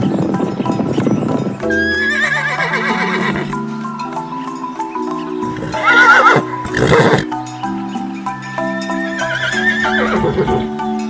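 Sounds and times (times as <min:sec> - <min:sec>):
background music with held notes: 0:00.0 - 0:11.0
horse whinnying: 0:02.0 - 0:03.4.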